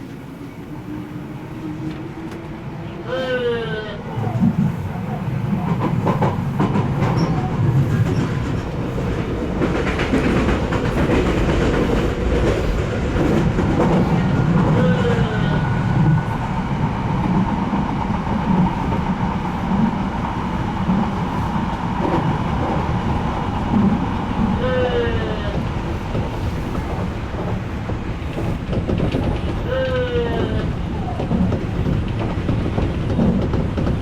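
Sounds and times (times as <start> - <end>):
train wheels rumbling on rails: 0.0 - 34.0
clacks over rail joints: 5.5 - 15.4, 25.4 - 34.0.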